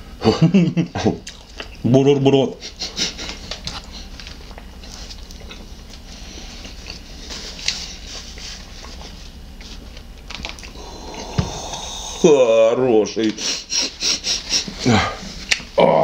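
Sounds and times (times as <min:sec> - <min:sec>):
chewing bread: 0:01.2 - 0:01.8, 0:02.7 - 0:11.3.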